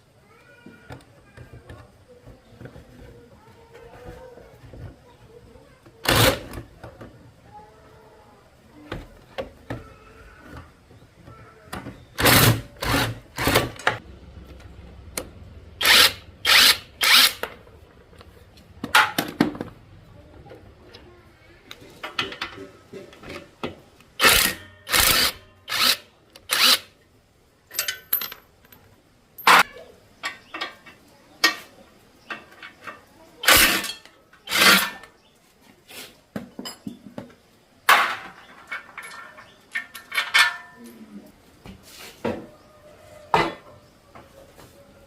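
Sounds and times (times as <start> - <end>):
metal tool clicks and clanks: 27.7 - 28.8, 38.7 - 40.9.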